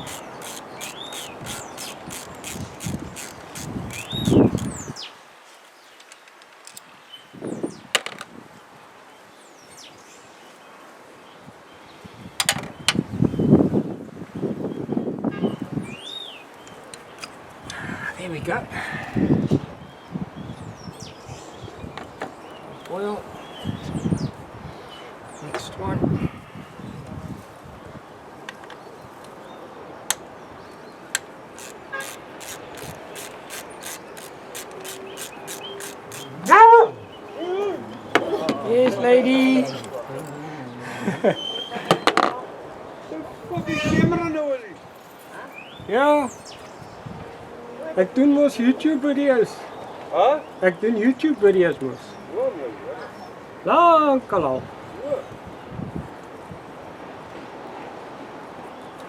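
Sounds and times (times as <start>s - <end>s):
metallic clicks of hand tools: 0.0s - 4.9s, 31.2s - 36.5s
birds chirping faintly: 0.0s - 5.2s.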